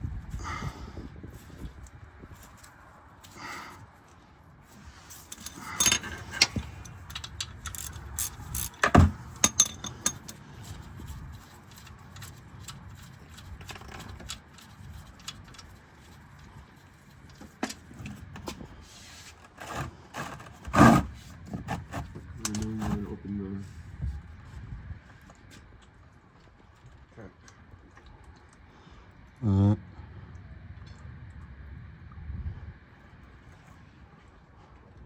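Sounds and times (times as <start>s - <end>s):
metal tools clinking and scraping: 4.8s - 15.7s.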